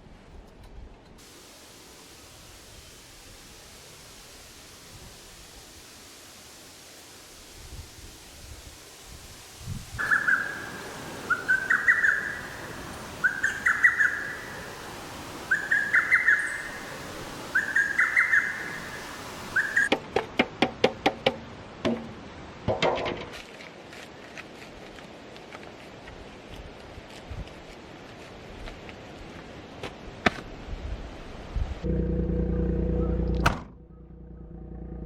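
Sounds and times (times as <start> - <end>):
bird singing rising phrase: 10.0 - 14.8, 15.5 - 16.9, 17.5 - 19.9, 31.9 - 35.0.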